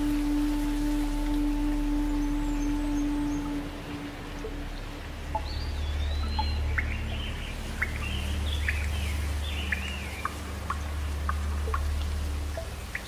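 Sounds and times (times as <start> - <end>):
low rumble: 0.0 - 13.0
steady rain: 0.0 - 13.0
small birds chirping: 5.3 - 13.0.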